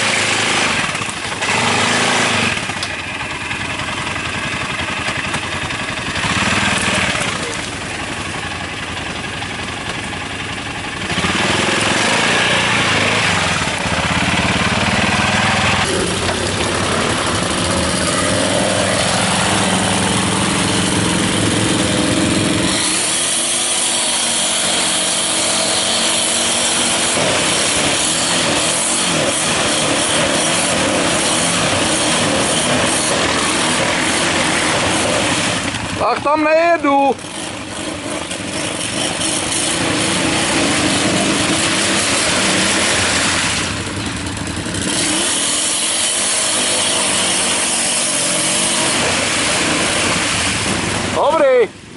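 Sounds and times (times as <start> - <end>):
quad bike engine revving: 0.0 - 51.9.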